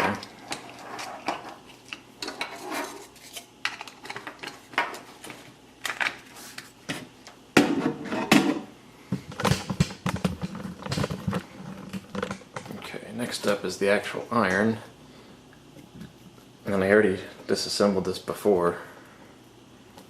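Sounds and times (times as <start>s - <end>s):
small parts and tools clattering: 9.3s - 12.8s.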